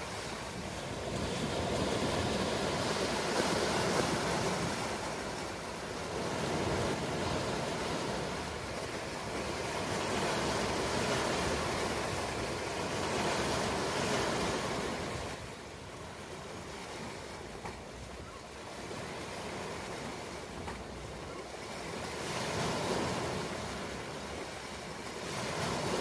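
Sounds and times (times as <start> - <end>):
ocean wave washing in: 0.0 - 15.5.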